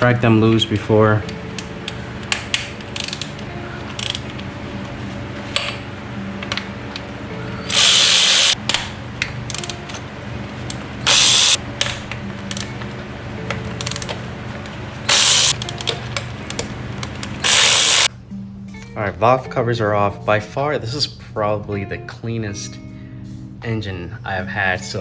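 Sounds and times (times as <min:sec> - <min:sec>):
ratchet wrench clicking: 0:02.3 - 0:03.4, 0:04.0 - 0:04.3, 0:07.7 - 0:08.9, 0:09.5 - 0:10.0, 0:10.7 - 0:12.7, 0:13.8 - 0:14.2, 0:15.1 - 0:16.7, 0:17.4 - 0:18.1.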